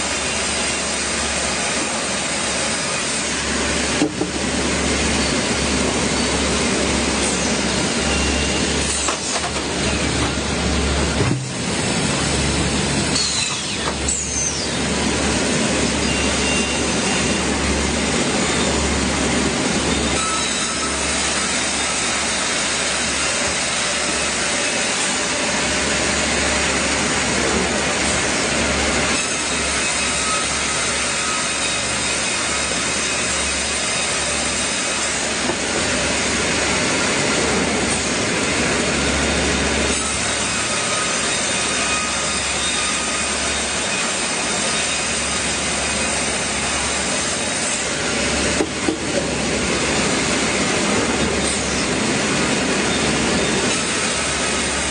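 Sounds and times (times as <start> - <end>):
saw cutting through wood: 0.0 - 4.2, 8.8 - 10.1, 13.1 - 18.6, 19.8 - 54.9.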